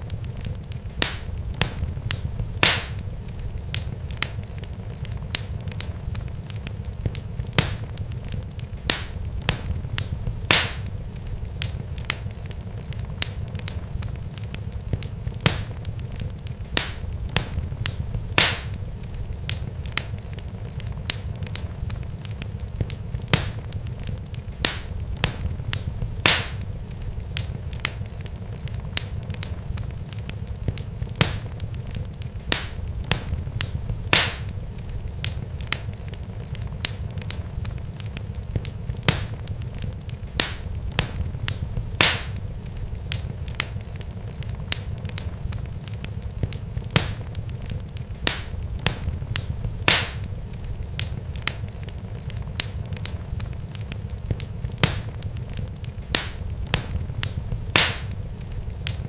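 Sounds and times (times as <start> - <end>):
low fire rumble: 0.0 - 59.0
wood fire crackling and popping: 0.0 - 59.0.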